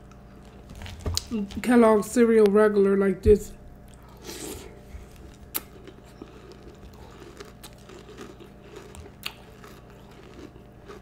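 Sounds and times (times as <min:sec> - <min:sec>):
person chewing cereal: 0:00.0 - 0:01.4, 0:03.9 - 0:11.0.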